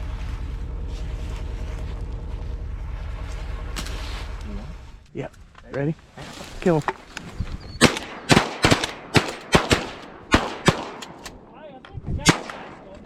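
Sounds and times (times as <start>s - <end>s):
shotgun shots: 7.8s - 11.5s, 12.2s - 13.0s.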